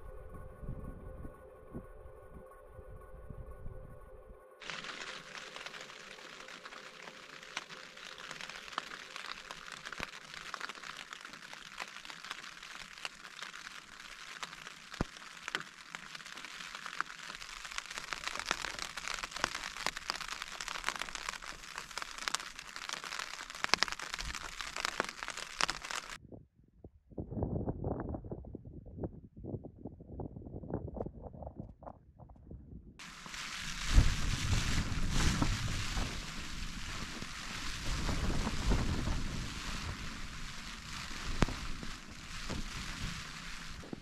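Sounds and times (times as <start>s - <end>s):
rain on tent fabric: 4.6s - 26.2s, 33.0s - 44.0s.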